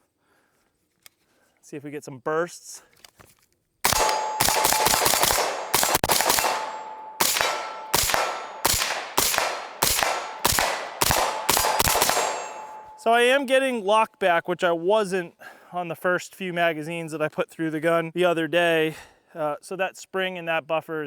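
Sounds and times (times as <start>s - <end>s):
suppressed rifle shots: 3.8s - 13.0s
thin ringing tone: 12.3s - 13.2s.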